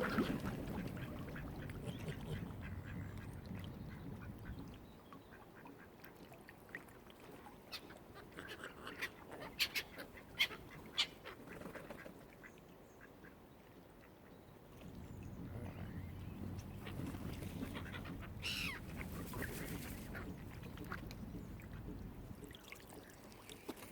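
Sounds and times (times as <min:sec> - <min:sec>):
waterfowl calling: 0:15.5 - 0:22.0.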